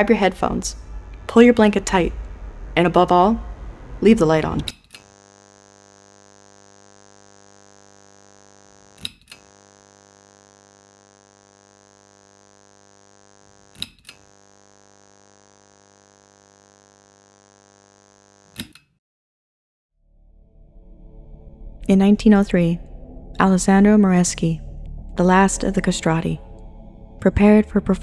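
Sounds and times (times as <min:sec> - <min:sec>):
synthesized drone: 0:00.0 - 0:08.8, 0:20.1 - 0:28.0.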